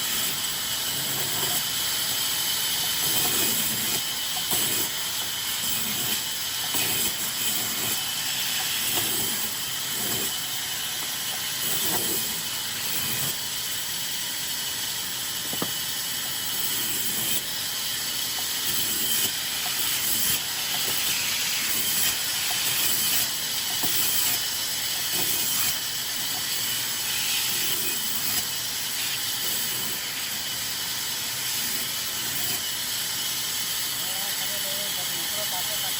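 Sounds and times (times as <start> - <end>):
sawmill machinery cutting wood: 0.0 - 35.9.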